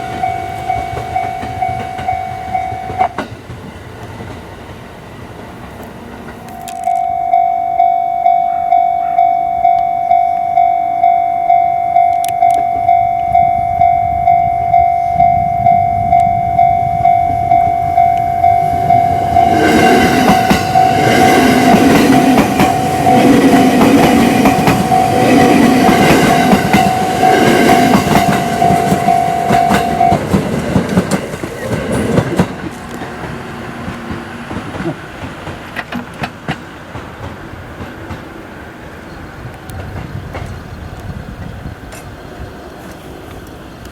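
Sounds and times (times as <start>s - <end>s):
level crossing alarm tone: 0.0s - 3.2s, 6.4s - 30.5s
train wheels clacking on rails: 0.0s - 4.7s, 5.4s - 38.6s, 39.4s - 42.2s.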